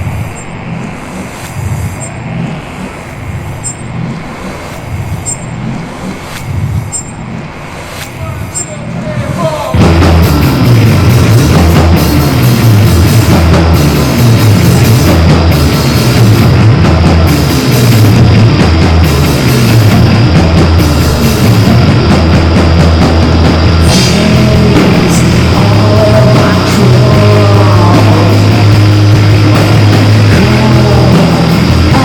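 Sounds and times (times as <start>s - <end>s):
live rock band playing: 9.7s - 32.0s.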